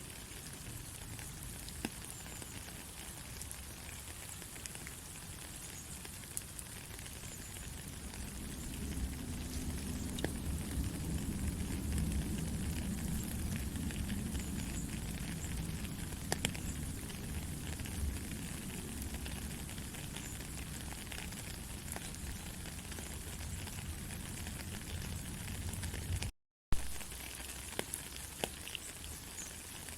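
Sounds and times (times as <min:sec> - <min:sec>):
pattering drips: 0:00.0 - 0:29.9
steady rain falling: 0:00.0 - 0:29.9
low rumble: 0:07.8 - 0:19.9.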